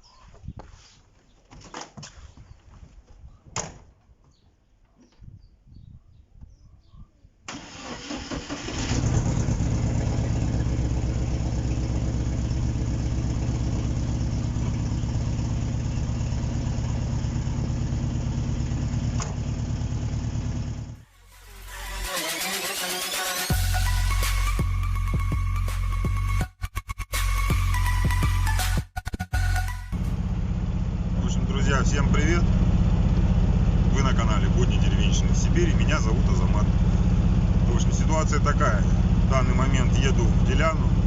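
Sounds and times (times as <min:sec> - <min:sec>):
large engine running loud: 0:08.9 - 0:21.0, 0:30.0 - 0:41.0.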